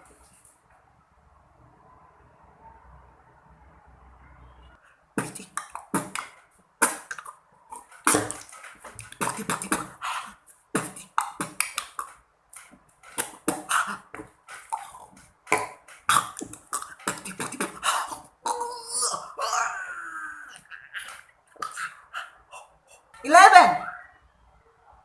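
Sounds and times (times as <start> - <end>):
beatboxing: 5.2 - 12.2, 13.1 - 19.2.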